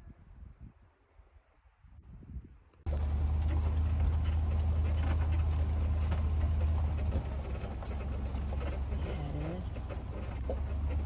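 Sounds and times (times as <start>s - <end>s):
off-road vehicle engine drone: 2.9s - 11.0s
road noise: 2.9s - 11.0s.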